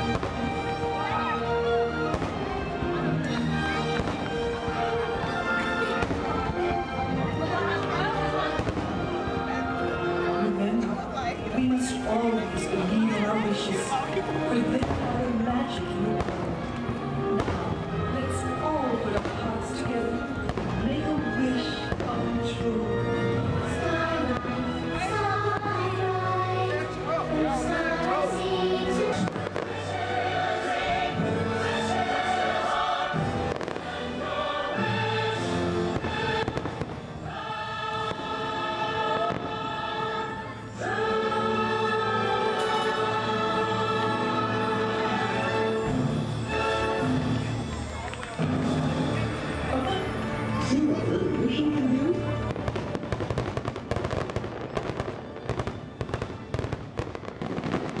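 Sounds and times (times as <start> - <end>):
fireworks bursting: 0.0 - 1.1, 1.9 - 6.9, 7.6 - 9.5, 11.6 - 22.7, 28.3 - 40.3, 52.2 - 58.0
music with choir singing: 0.0 - 58.0.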